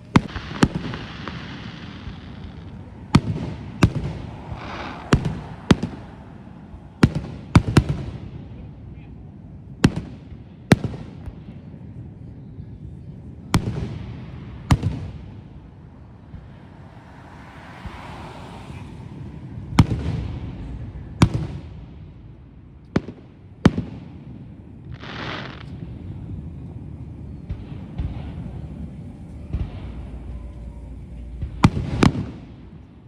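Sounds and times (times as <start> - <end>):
fireworks booms: 0.0 - 33.0
rushing hiss: 0.2 - 6.9, 24.9 - 25.8.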